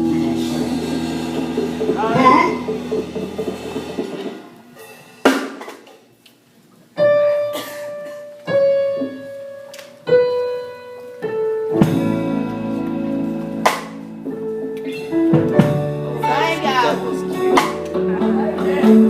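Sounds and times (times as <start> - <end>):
keyboard chords: 0.0 - 4.8, 7.0 - 19.0
drum hit: 0.0 - 5.8
gospel band playing: 0.0 - 5.9, 7.0 - 19.0.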